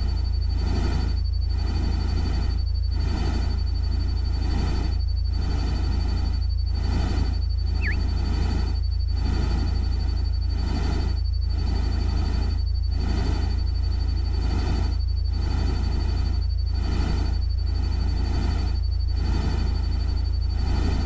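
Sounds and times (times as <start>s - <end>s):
thin high tone: 7.8s - 8.0s.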